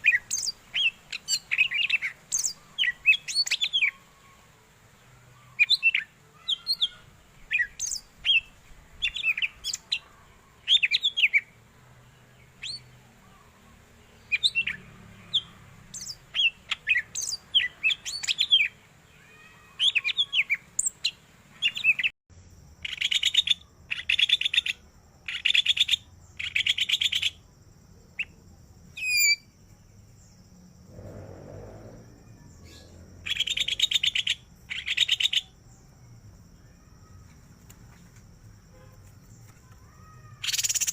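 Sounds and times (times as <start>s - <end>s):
bird singing whistled notes: 0.0s - 4.0s, 5.5s - 10.0s, 12.4s - 13.0s, 14.2s - 18.8s, 28.2s - 29.5s, 40.4s - 40.9s.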